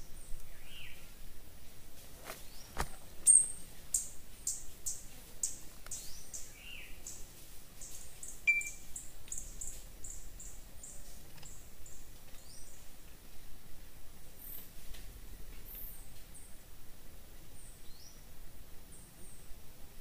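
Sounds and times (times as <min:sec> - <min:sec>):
bird chirping: 0:02.5 - 0:07.2, 0:07.8 - 0:12.9
other bird calls: 0:08.2 - 0:12.7.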